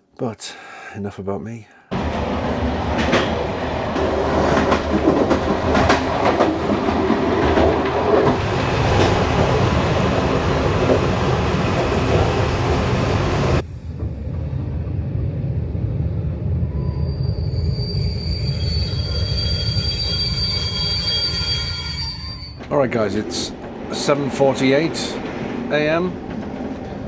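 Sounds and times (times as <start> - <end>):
train rolling rumble: 1.9 - 27.0
wheels clacking over rail joints: 2.0 - 13.6.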